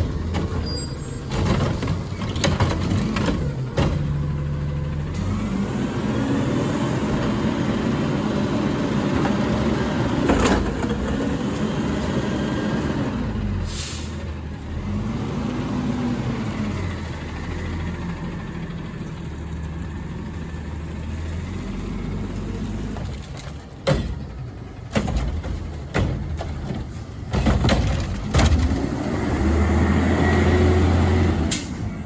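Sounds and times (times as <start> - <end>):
garbage truck diesel engine: 0.0 - 32.0
short hiss of air: 13.6 - 14.2.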